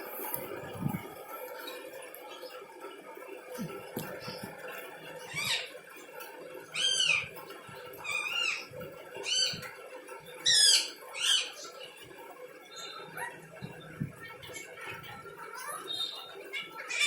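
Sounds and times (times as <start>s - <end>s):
parrot calling: 5.2s - 5.7s, 6.7s - 7.4s, 8.0s - 9.7s, 10.4s - 11.9s.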